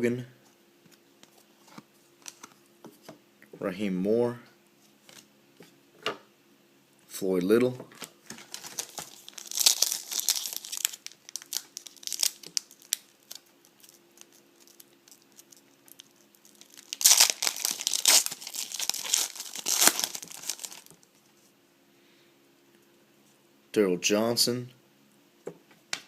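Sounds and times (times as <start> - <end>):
wrapper crinkling and tearing: 8.3 - 21.1.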